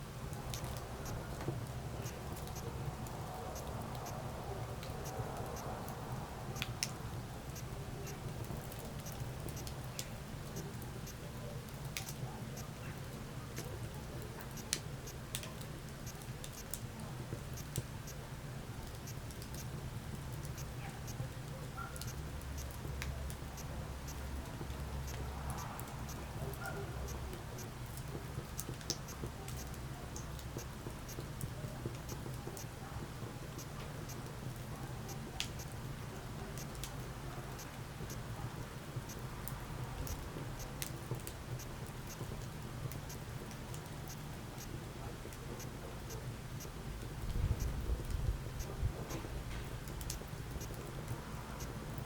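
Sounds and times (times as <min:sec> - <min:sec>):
low rumble of flames: 0:00.0 - 0:52.0
wood fire crackling: 0:00.0 - 0:52.0.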